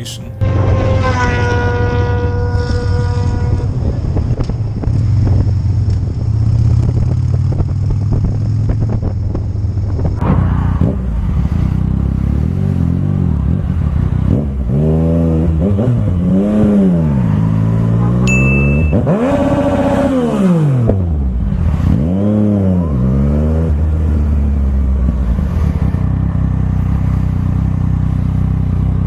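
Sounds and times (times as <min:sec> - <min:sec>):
motorcycle engine drone: 0:00.0 - 0:29.0
motorcycle engine revving: 0:00.0 - 0:29.0
wind rumble: 0:02.6 - 0:12.5
steady pitched tone: 0:18.3 - 0:19.2.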